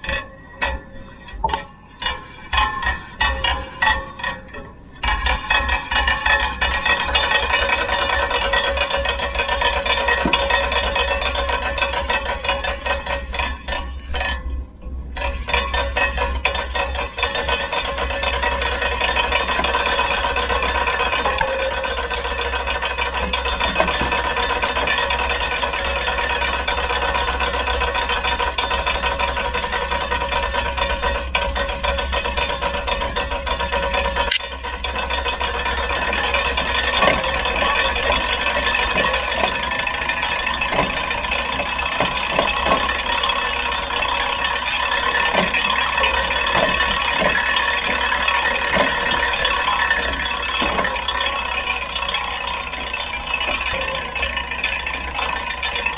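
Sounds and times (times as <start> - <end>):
fine ticking and rattling: 4.2 - 14.5, 15.1 - 55.9
bicycle drivetrain whirring: 15.2 - 55.9.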